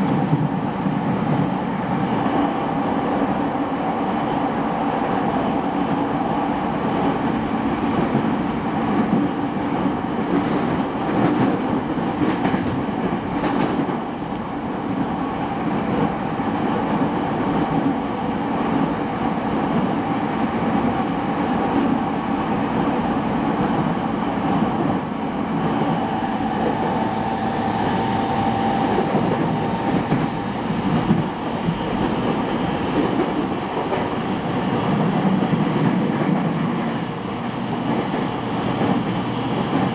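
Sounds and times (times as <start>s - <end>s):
train wheels rumbling on rails: 0.0s - 39.9s
wheels clickety-clack: 10.3s - 14.6s, 28.9s - 34.2s, 34.9s - 39.9s.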